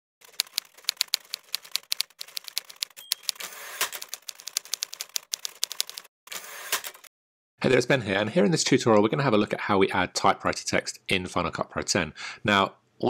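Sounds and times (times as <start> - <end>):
typewriter keys clacking: 0.2 - 6.1.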